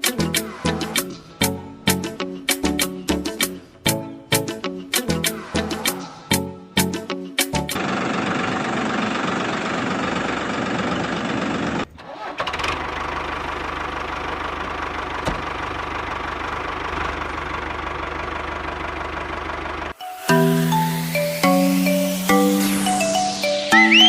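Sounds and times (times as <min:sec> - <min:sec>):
model tractor engine drone: 0:07.8 - 0:20.0.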